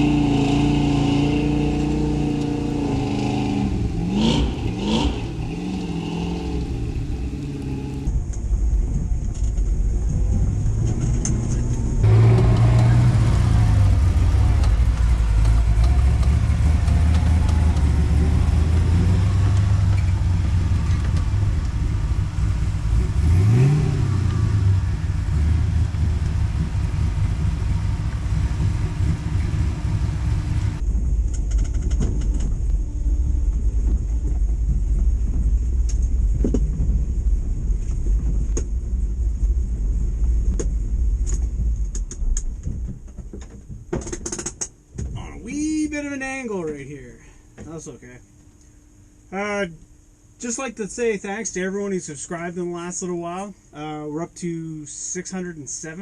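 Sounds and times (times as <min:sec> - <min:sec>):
truck engine revving: 0:00.0 - 0:08.1, 0:10.8 - 0:30.8.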